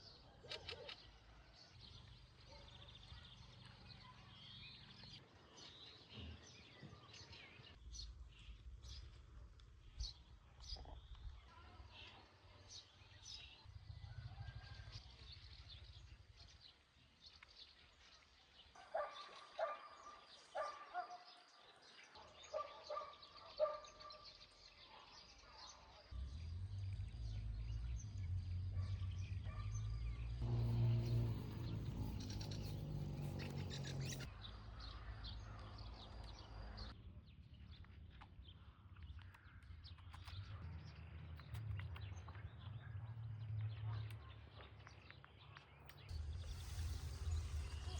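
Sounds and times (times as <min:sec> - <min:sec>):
steady low rumble: 0:26.2 - 0:34.3, 0:46.1 - 0:47.9
birds calling: 0:26.3 - 0:34.3.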